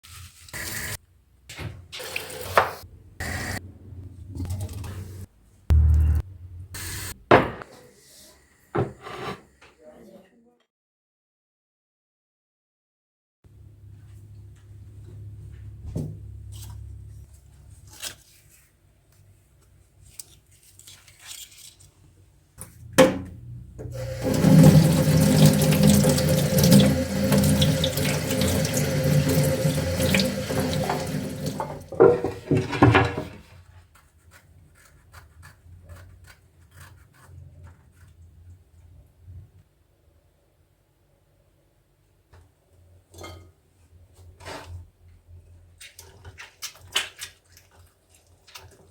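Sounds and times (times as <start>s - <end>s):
kitchen tap running: 2.0s - 3.4s, 22.9s - 33.3s
kitchenware clicks and knocks: 30.8s - 33.4s.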